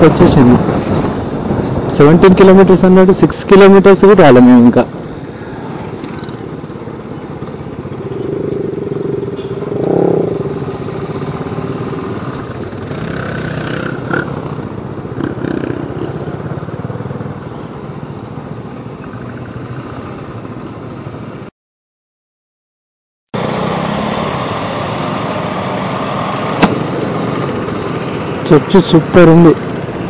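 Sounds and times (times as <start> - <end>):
wind noise on microphone: 0.0 - 2.4
motorcycle engine running: 7.4 - 17.3.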